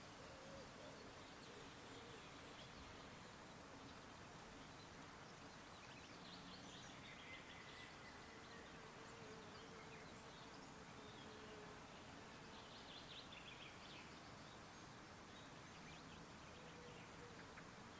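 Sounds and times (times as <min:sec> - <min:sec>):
outdoor hiss: 0:00.0 - 0:17.9.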